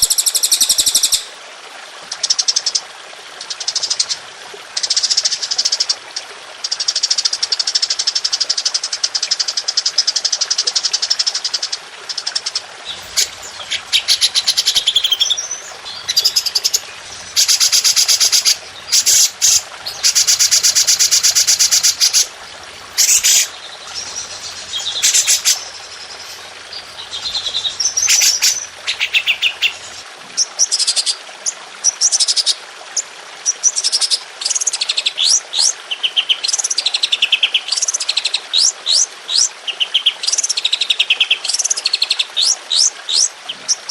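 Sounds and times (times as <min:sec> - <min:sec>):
songbird rapid trills: 0:12.2 - 0:30.0.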